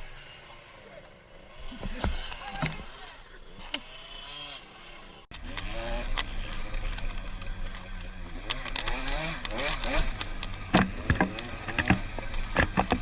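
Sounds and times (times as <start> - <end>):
dirt bike engines revving: 0.0 - 13.0
motorbike engine running steadily: 5.4 - 13.0
sharp knocks: 10.6 - 13.0.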